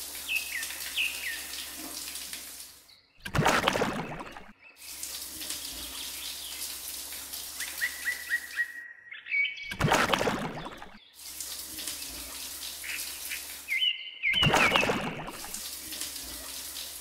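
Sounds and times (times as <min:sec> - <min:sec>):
water splashing into sand: 0:00.0 - 0:08.7, 0:09.7 - 0:13.8, 0:14.4 - 0:17.0
bird chirping: 0:00.2 - 0:01.8, 0:07.5 - 0:09.7, 0:12.1 - 0:15.5.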